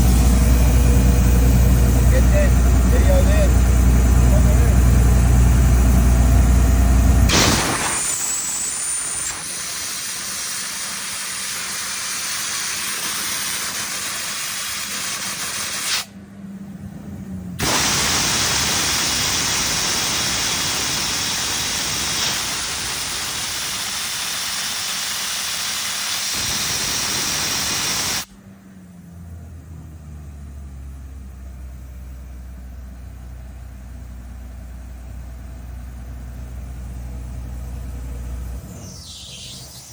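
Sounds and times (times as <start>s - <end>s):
compressor engine humming: 0.0s - 39.9s
compressed air hissing: 17.6s - 28.3s.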